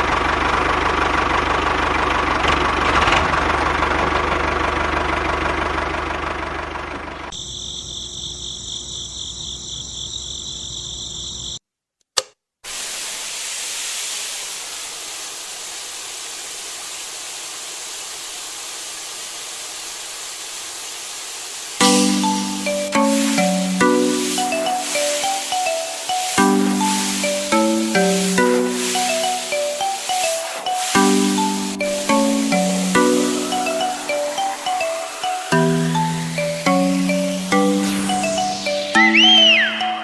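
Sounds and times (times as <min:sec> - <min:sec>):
steady hiss: 0:12.6 - 0:40.0
high whine: 0:21.8 - 0:40.0.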